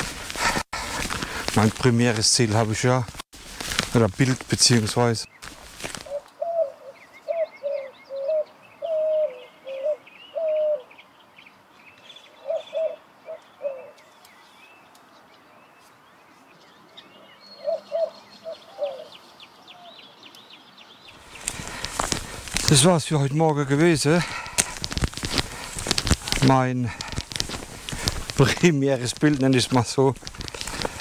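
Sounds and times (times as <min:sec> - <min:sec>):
small birds chirping faintly: 0:05.0 - 0:24.1
bird low calling notes: 0:06.0 - 0:11.0, 0:11.9 - 0:14.9, 0:16.4 - 0:22.5.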